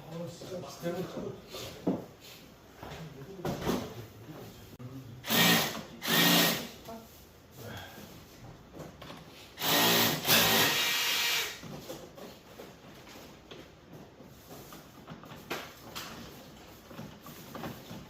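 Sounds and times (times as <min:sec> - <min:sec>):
power drill motor running: 0:05.2 - 0:06.7, 0:09.6 - 0:11.6.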